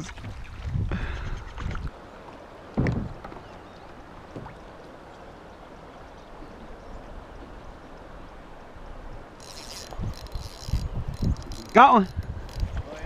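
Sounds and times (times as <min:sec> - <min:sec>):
river water running: 0:00.0 - 0:13.0
low thump: 0:02.8 - 0:03.4.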